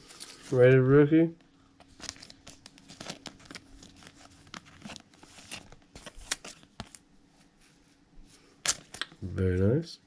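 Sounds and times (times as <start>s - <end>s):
cards rustling and clicking: 1.8s - 7.1s, 8.6s - 9.7s.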